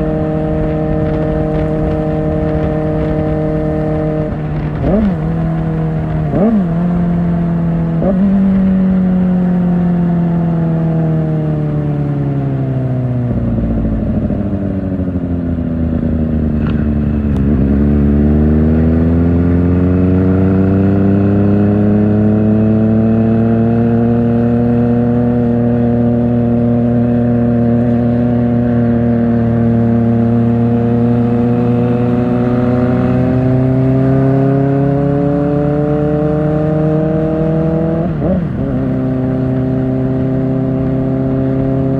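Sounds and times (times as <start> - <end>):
motorcycle engine while riding: 0.0 - 41.9.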